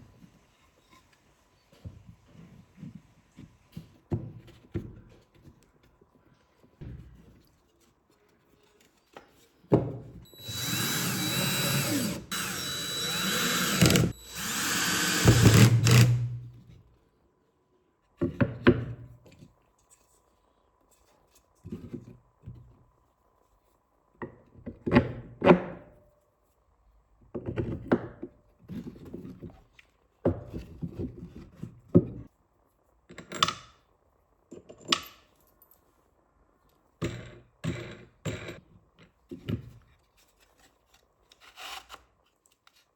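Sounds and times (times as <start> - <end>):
handheld power tool running: 10.3 - 16.5.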